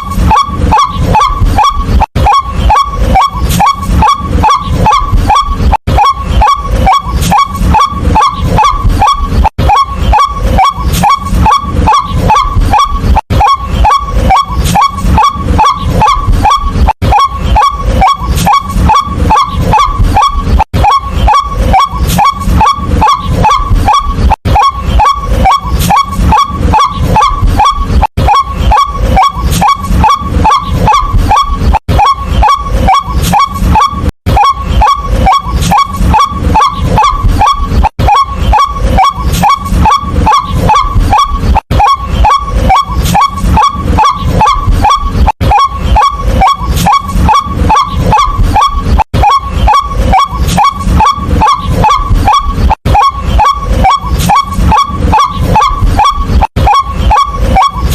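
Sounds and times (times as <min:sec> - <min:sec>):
waterhen repetitive kwak call: 0:00.0 - 0:57.9.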